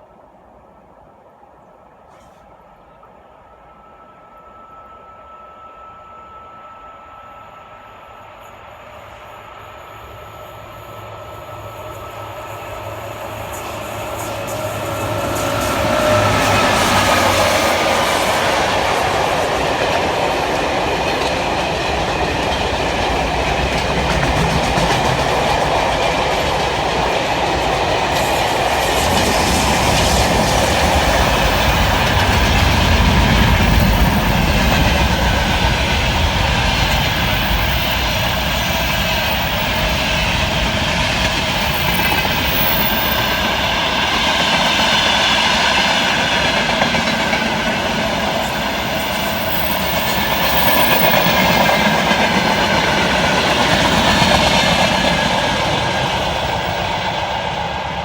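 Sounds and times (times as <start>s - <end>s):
train wheels clattering over rail joints: 13.6s - 57.0s.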